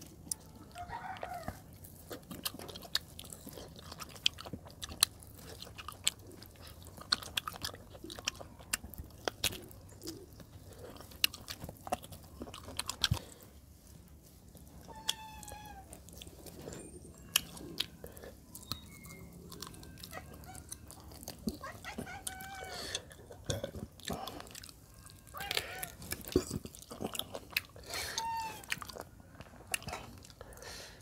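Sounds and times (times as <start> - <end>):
person chewing food: 0.0 - 31.0
high-pitched calls: 18.6 - 21.0.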